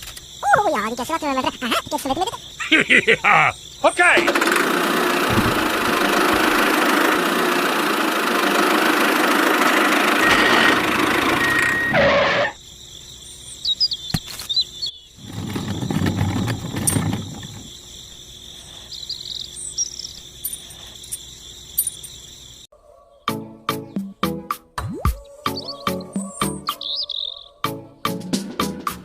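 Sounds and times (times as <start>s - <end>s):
small motor running: 4.2s - 12.1s
bird chirps: 13.2s - 15.2s, 18.6s - 24.2s, 25.1s - 27.6s.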